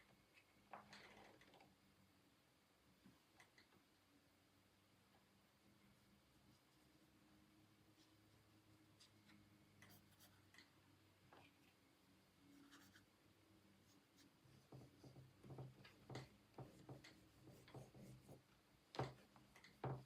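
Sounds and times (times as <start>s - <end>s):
drawing tool strokes on paper: 13.8s - 18.5s.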